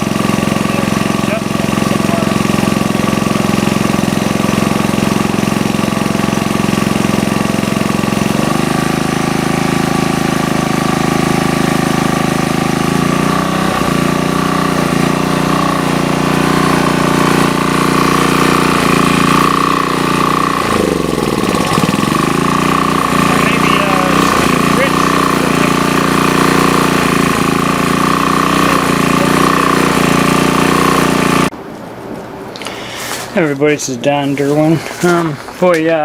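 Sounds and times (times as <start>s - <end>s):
portable generator running: 0.0s - 31.6s
thin whine: 8.3s - 31.5s.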